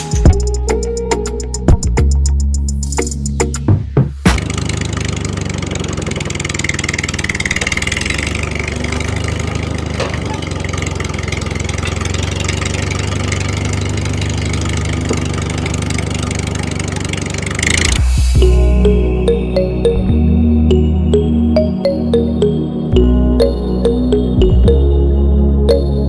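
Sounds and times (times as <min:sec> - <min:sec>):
small engine running: 0:04.2 - 0:18.5.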